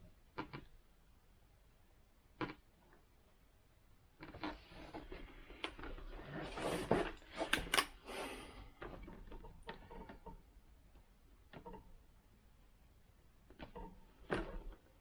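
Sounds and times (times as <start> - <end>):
plastic mount rustling and clicking: 7.3 - 7.9.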